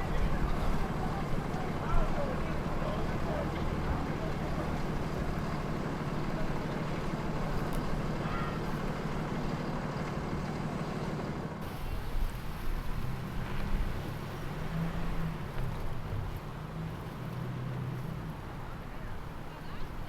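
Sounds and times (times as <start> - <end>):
engines rumbling at low revs: 0.0 - 20.0.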